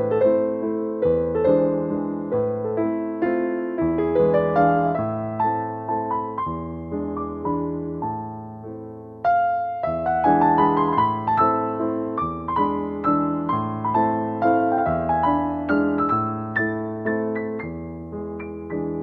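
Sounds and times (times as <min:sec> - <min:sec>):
piano chords and melody: 0:00.0 - 0:19.0.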